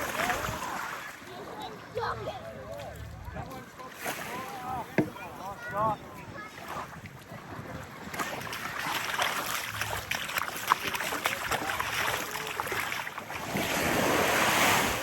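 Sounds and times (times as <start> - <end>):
small waves lapping on sand: 0.0 - 15.0
wave washing in: 12.7 - 15.0.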